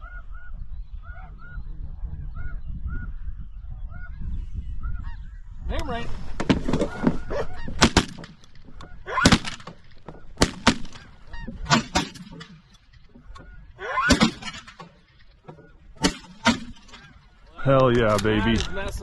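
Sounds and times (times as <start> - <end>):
shotgun blasts: 6.4 - 12.7, 14.0 - 15.2, 16.0 - 17.2
snow geese honking: 6.7 - 12.1, 16.8 - 19.0.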